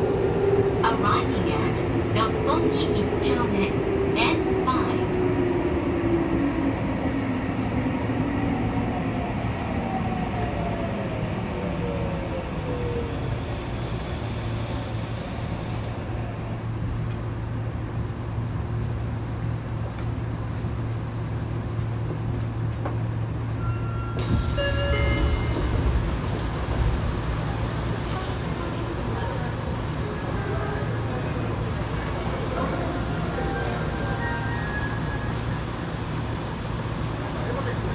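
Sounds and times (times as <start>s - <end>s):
electric train running: 13.4s - 37.9s.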